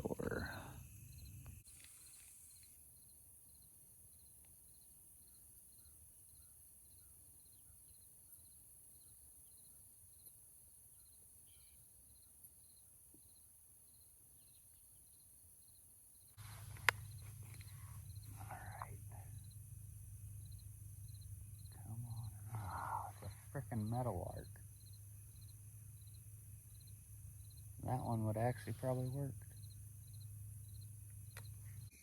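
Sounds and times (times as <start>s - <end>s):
cricket chirping: 0.0s - 32.0s
faint ticks: 16.4s - 19.6s, 29.4s - 32.0s
steady high hiss: 16.4s - 30.6s.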